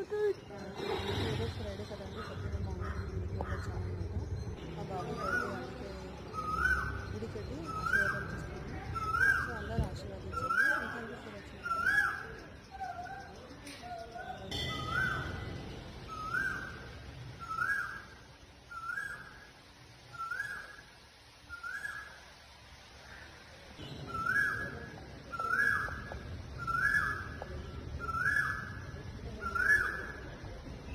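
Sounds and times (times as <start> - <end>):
bird whistling rising call: 14.7 - 19.5.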